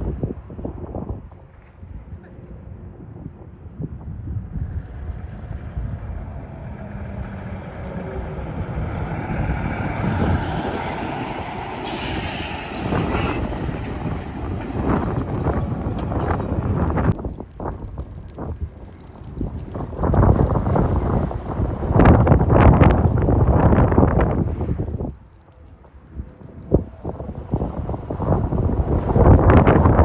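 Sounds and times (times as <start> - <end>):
semi truck passing: 4.5 - 18.0, 18.8 - 30.0
sharp hiss: 9.3 - 16.0.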